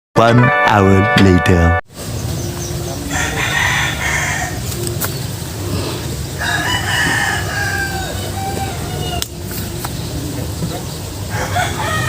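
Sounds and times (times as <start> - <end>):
rooster crowing: 3.1 - 4.7, 6.4 - 9.4, 11.3 - 12.0.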